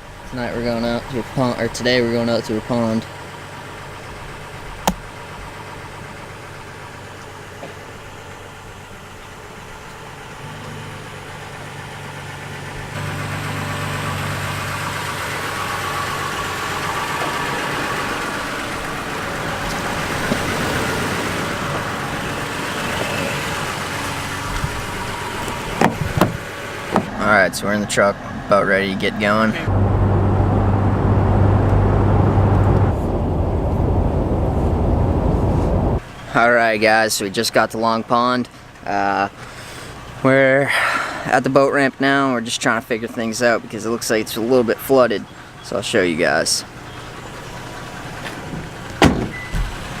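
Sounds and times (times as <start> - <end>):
truck engine idling: 0.0 - 50.0
even rushing noise: 27.4 - 36.0.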